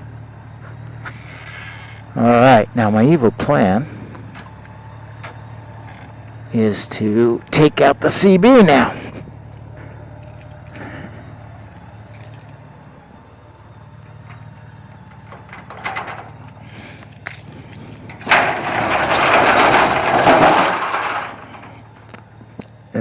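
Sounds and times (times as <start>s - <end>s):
engine clicks and knocks: 14.0s - 22.7s.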